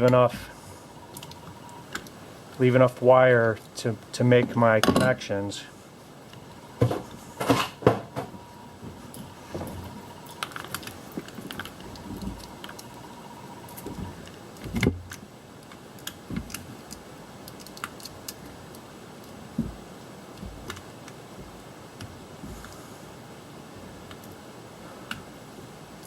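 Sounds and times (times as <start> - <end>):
wires clicking and rattling: 9.0 - 22.8.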